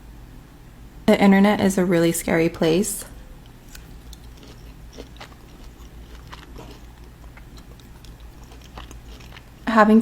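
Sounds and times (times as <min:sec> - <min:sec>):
faint low hum: 0:00.0 - 0:10.0
wet chewing mouth clicks: 0:03.4 - 0:09.7.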